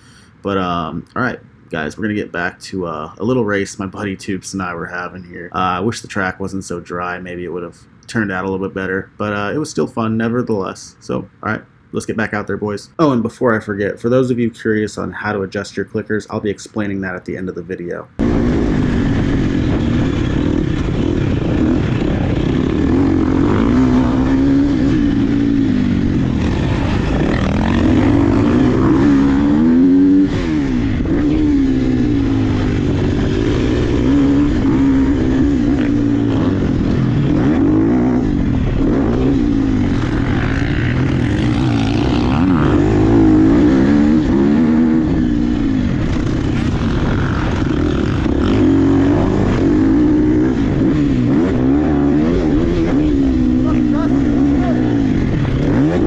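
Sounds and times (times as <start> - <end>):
dirt bike engine revving: 18.2 - 56.0.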